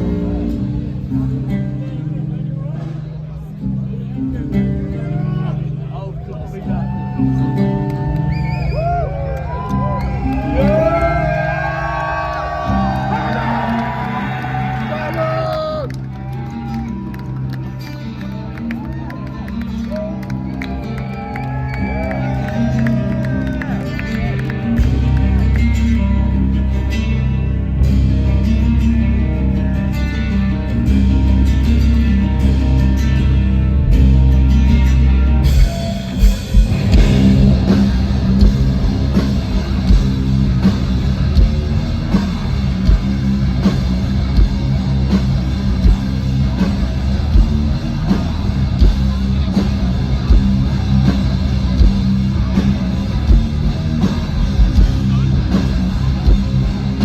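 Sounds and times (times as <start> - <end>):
metal band playing live: 0.0 - 57.0
pounding drum beat: 35.5 - 57.0.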